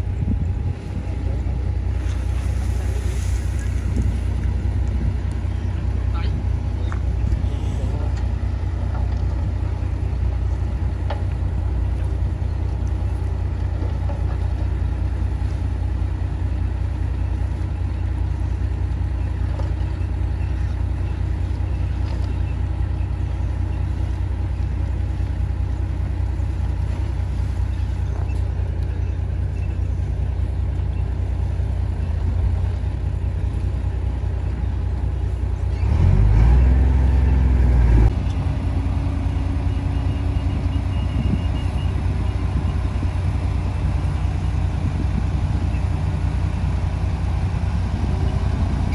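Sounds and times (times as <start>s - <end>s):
heavy diesel engine revving: 35.6s - 41.3s.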